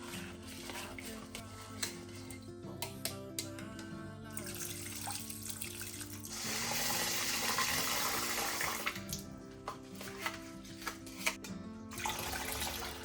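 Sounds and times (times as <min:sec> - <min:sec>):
background music: 0:00.0 - 0:13.0
tap water running into sink: 0:04.4 - 0:09.2, 0:12.0 - 0:13.0.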